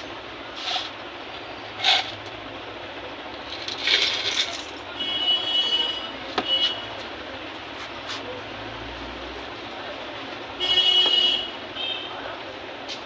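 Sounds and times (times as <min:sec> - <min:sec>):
hand tools scraping and clattering: 0:00.5 - 0:01.0, 0:01.7 - 0:02.3.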